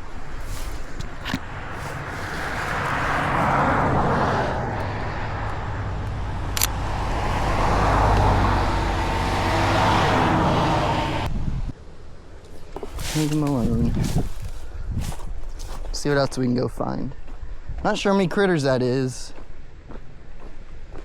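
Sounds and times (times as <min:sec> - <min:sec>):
car driving past: 0:01.4 - 0:11.3.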